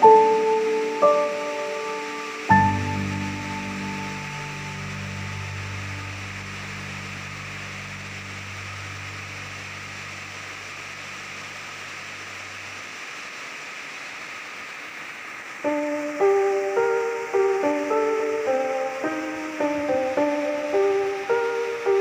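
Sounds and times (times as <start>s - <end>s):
plucked music melody: 0.0s - 8.0s, 15.7s - 22.0s
steady rain hiss: 0.0s - 22.0s
low droning tone: 2.4s - 12.6s.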